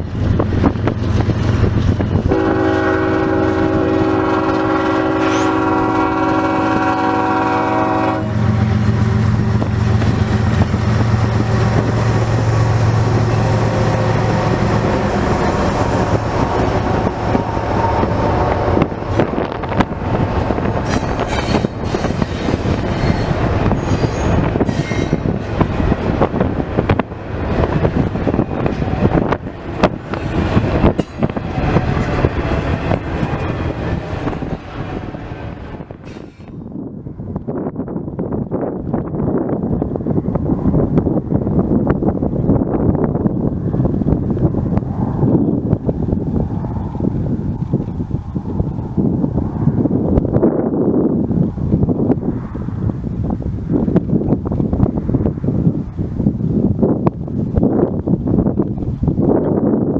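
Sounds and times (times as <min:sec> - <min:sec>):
locomotive engine drone: 0:00.0 - 0:37.4
freight cars rumbling and clicking: 0:00.0 - 0:59.9
locomotive air horn chord: 0:02.3 - 0:08.7.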